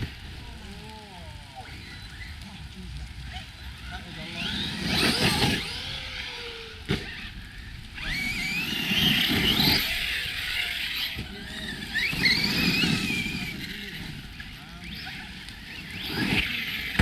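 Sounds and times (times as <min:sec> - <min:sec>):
tyres rumbling on rough ground: 0:00.0 - 0:17.0
electric motor whining: 0:03.3 - 0:17.0.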